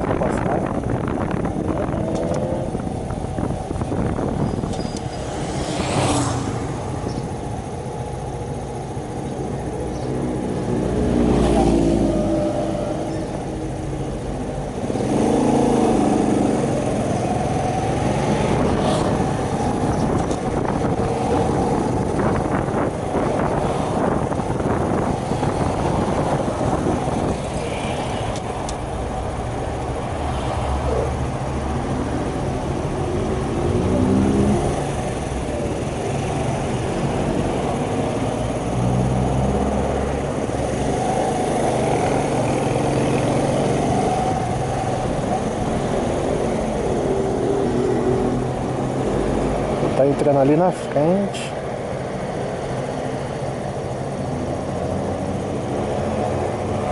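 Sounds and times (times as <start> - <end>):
wind buffeting microphone: 0.0 - 30.2.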